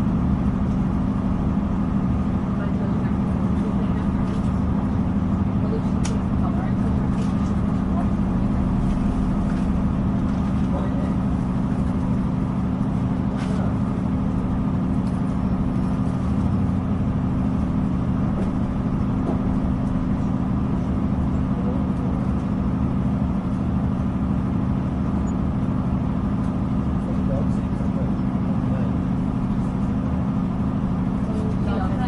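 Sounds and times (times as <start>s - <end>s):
diesel train engine drone: 0.0s - 32.0s
train wheel noise: 0.0s - 32.0s.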